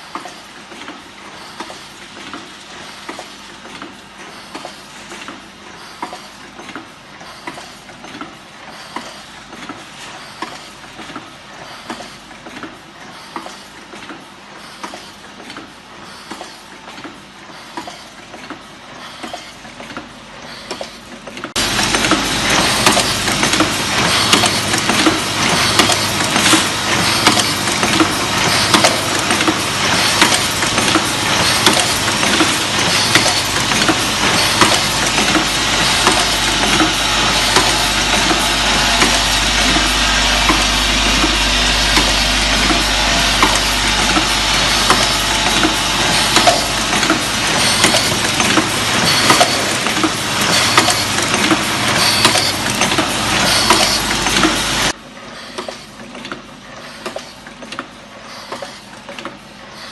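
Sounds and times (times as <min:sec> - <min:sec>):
filling machine clattering: 0:21.6 - 0:54.9.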